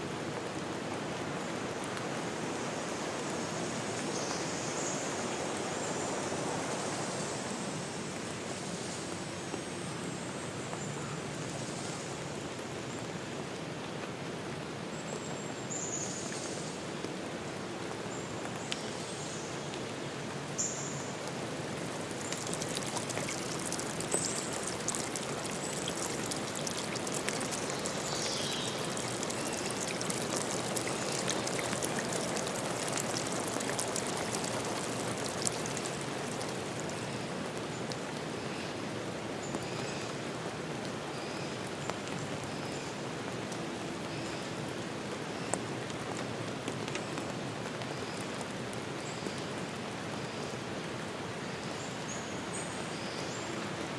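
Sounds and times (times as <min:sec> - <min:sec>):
water rushing: 0:20.1 - 0:38.4
water drops ticking: 0:22.0 - 0:37.0.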